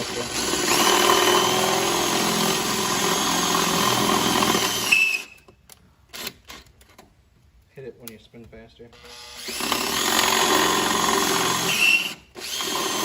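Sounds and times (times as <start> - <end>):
electric drill boring into metal: 0.0 - 5.4, 9.0 - 13.0.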